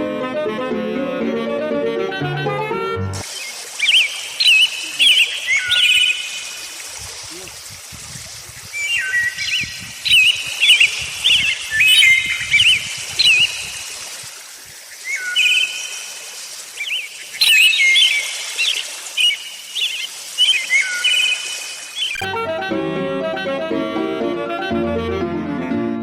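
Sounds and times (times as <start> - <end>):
birds chirping and warbling: 3.2 - 14.3, 14.9 - 16.2, 16.8 - 22.3.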